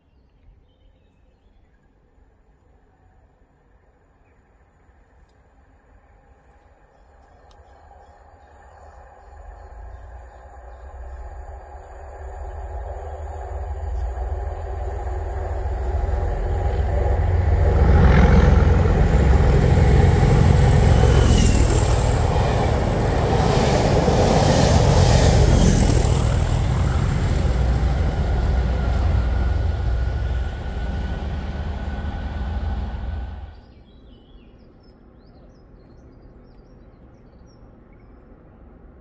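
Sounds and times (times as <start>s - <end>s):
diesel train passing: 4.5s - 33.9s
train wheel clatter: 7.6s - 33.5s.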